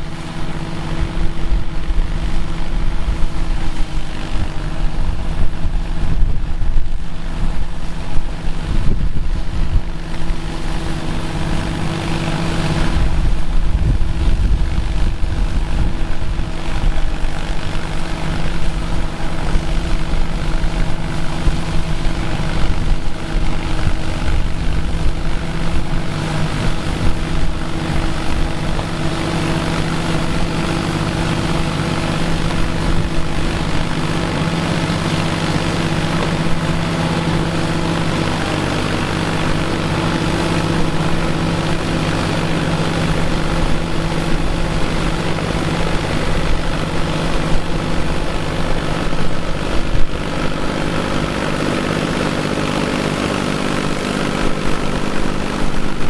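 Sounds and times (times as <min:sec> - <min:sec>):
farm machinery engine running: 0:00.0 - 0:56.0.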